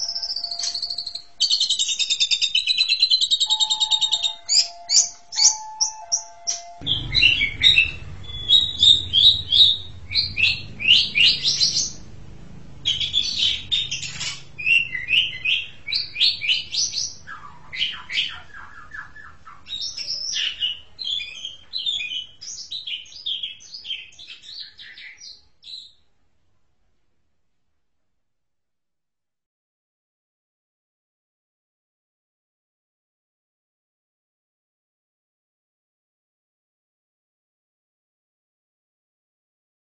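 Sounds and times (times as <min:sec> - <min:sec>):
starling singing chirps and whistles: 0:00.0 - 0:12.1, 0:12.9 - 0:25.9.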